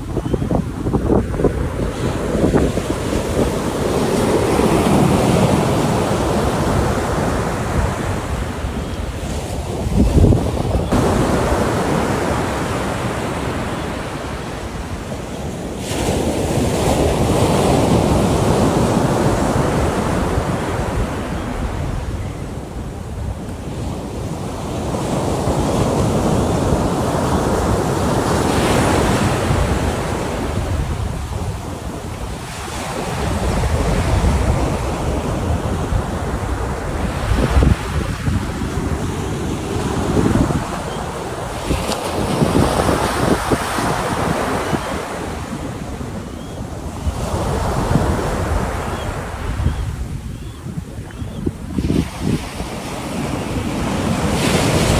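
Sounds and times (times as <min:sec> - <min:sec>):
surf breaking on beach: 0:01.8 - 0:14.9.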